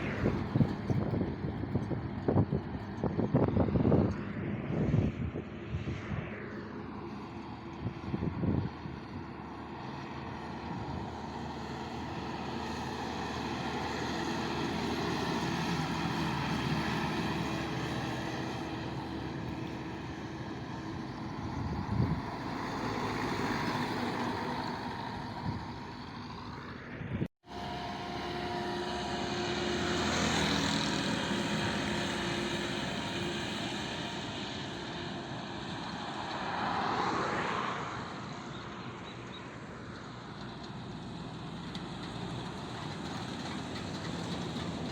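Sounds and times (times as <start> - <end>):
road noise: 0.0 - 44.9
truck engine running: 27.5 - 36.0.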